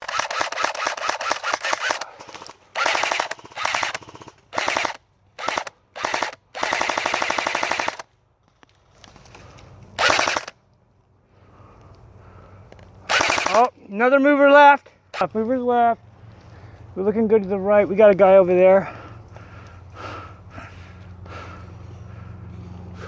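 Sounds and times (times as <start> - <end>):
airsoft guns firing in bursts: 0.0 - 8.1, 10.0 - 10.5, 13.1 - 13.7.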